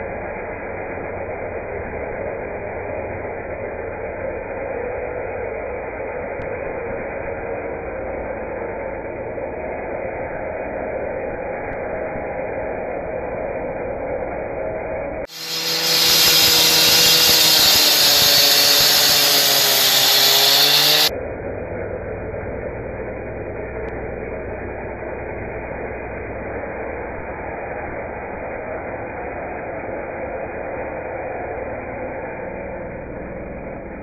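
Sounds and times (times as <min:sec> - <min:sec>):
muffled mechanical noise: 0:00.0 - 0:34.0
power tool motor running: 0:15.3 - 0:21.1.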